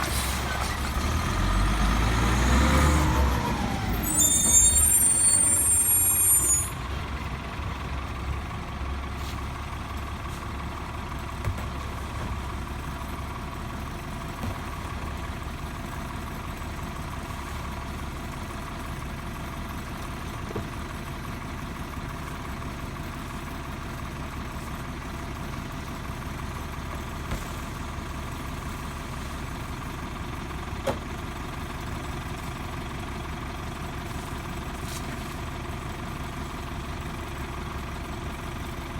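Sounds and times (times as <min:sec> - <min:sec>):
garbage truck idling: 0:00.0 - 0:38.9
high squeal: 0:03.5 - 0:06.9.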